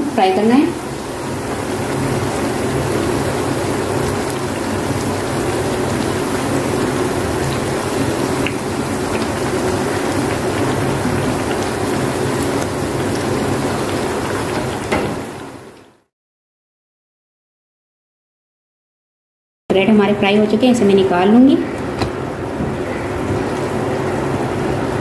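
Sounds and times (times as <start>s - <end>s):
bread sizzling in hot oil: 0.0s - 16.0s.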